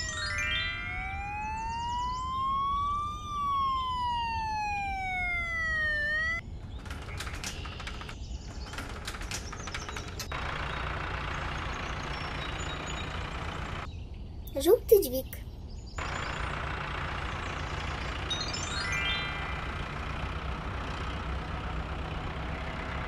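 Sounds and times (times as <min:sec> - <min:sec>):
cartoon siren wailing: 0:00.0 - 0:06.4
rattling clicking clatter: 0:06.7 - 0:10.6.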